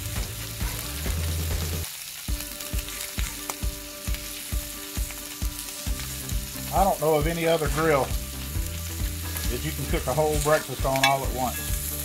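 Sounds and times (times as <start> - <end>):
food sizzling on a griddle: 0.0 - 12.0.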